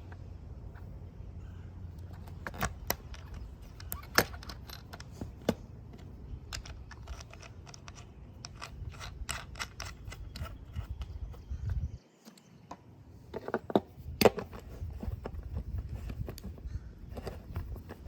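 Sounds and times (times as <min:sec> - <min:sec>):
low steady rumble: 0:00.0 - 0:12.0
small metallic clicks of skateboard parts: 0:01.9 - 0:18.0.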